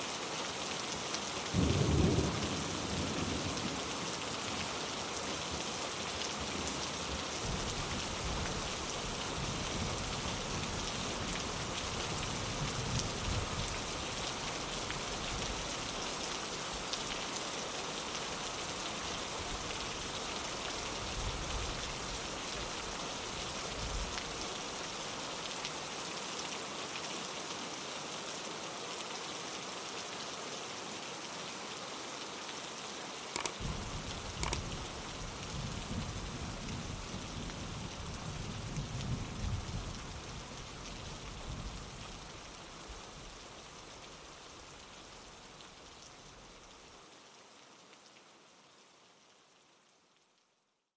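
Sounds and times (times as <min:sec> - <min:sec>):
rain on a window: 0:00.0 - 0:50.9.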